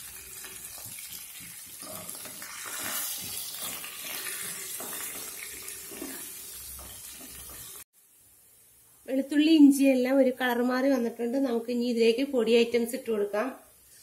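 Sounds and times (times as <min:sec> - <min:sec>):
spices sizzling in hot oil: 0:00.0 - 0:08.6
wooden spatula scraping a wok: 0:00.6 - 0:07.8.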